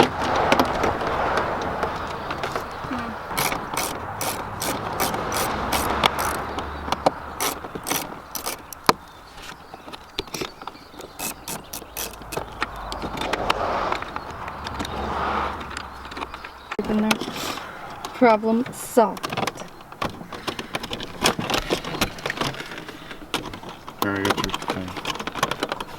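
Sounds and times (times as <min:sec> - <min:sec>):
handling and scraping noise: 0:00.0 - 0:25.9
hand ratchet clicking: 0:03.3 - 0:09.0, 0:10.3 - 0:12.9.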